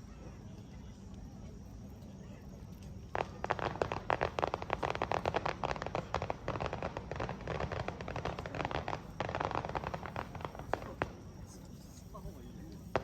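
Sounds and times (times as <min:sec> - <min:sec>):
fireworks popping and crackling: 0:02.9 - 0:13.0.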